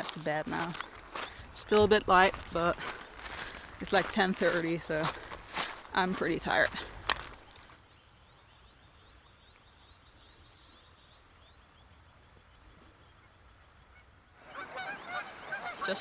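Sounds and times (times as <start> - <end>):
geese honking: 13.9 - 16.0.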